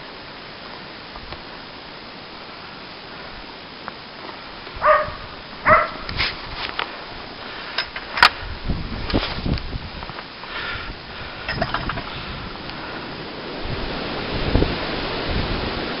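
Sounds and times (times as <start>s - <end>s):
steady hiss: 0.0s - 16.0s
dog barking: 4.8s - 6.0s.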